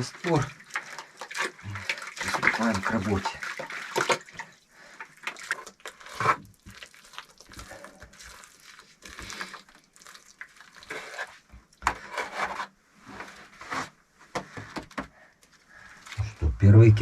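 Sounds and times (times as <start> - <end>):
scraping of mortar and bricks: 5.5 - 6.5, 10.5 - 14.0.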